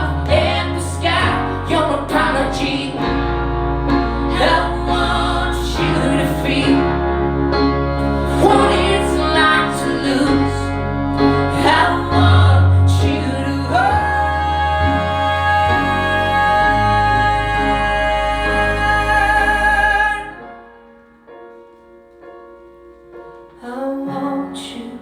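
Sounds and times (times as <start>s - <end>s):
person singing: 0.0s - 7.0s, 8.0s - 20.6s.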